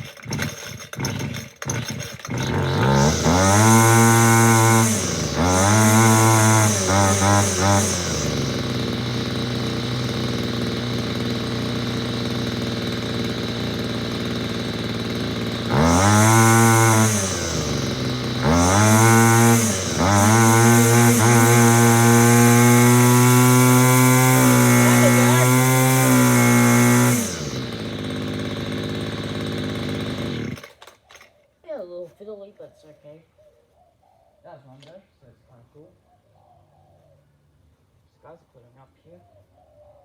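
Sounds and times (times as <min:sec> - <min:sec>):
string trimmer engine idling: 0:00.0 - 0:31.3
string trimmer engine revving: 0:00.0 - 0:31.3.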